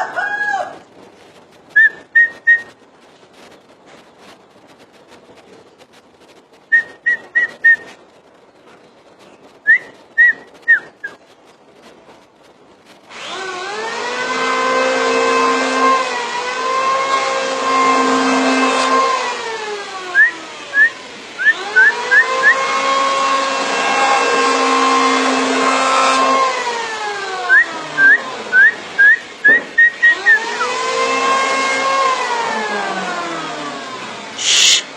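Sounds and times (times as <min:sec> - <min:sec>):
engine revving: 0:13.2 - 0:19.5, 0:20.2 - 0:26.6
bird whistled notes: 0:34.4 - 0:34.9.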